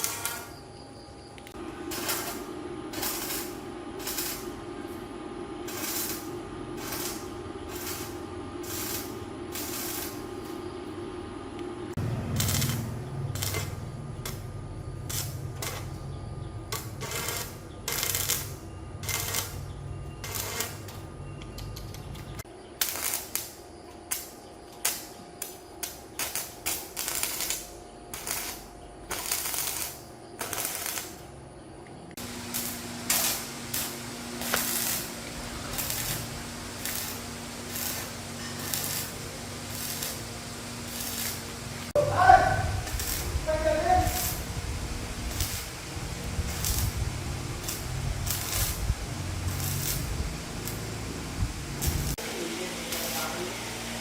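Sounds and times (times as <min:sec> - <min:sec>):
low motor hum: 0:00.0 - 0:22.5, 0:30.5 - 0:54.0
short bursts of hissing air: 0:32.2 - 0:54.0.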